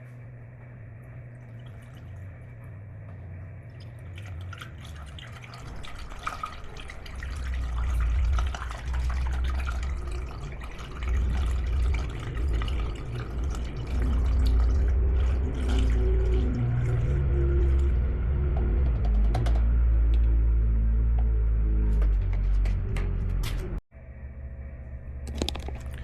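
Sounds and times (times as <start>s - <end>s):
liquid splashing and glugging: 3.6s - 18.1s.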